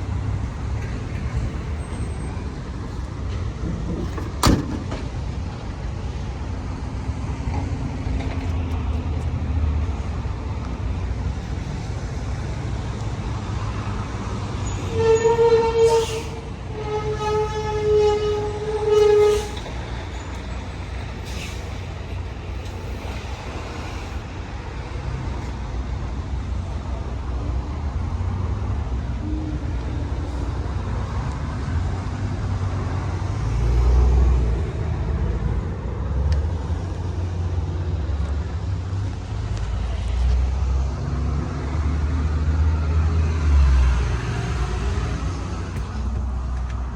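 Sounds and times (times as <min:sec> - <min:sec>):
low rumble of vehicles: 0:00.0 - 0:46.9
vehicle horn: 0:14.9 - 0:19.7.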